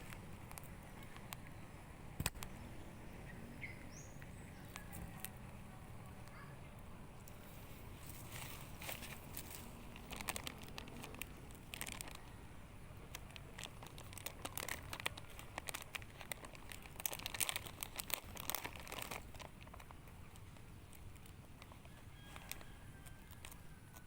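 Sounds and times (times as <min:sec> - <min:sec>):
food packaging crinkling: 0:07.3 - 0:24.0.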